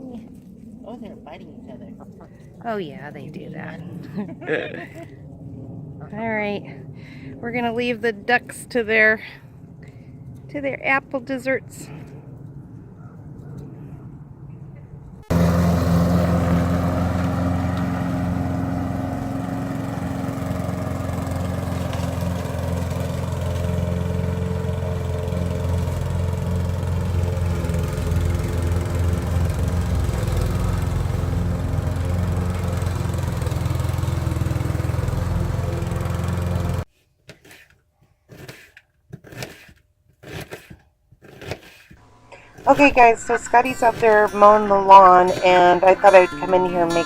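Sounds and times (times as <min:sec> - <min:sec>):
lawn mower engine running: 0:15.2 - 0:36.9, 0:42.1 - 0:47.0.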